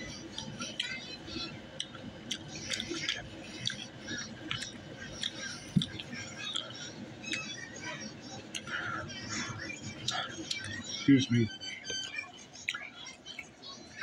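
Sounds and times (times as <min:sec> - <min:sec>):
chewing with wet mouth clicks: 0:01.8 - 0:07.5, 0:08.4 - 0:08.9, 0:11.9 - 0:13.6.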